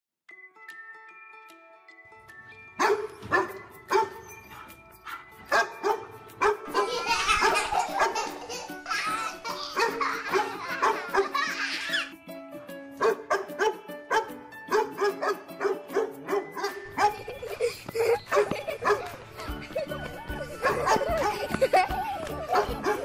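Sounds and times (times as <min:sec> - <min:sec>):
cheerful music with chiming tones: 0:00.3 - 0:23.0
dog barking: 0:02.8 - 0:08.3, 0:09.8 - 0:11.4, 0:13.0 - 0:17.3, 0:18.3 - 0:19.1, 0:20.6 - 0:21.4, 0:22.5 - 0:23.0.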